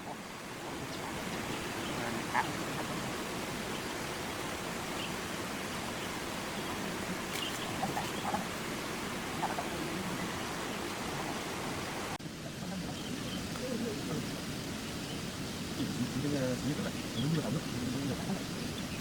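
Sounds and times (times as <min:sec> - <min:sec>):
faint chirps: 0:05.8 - 0:08.5.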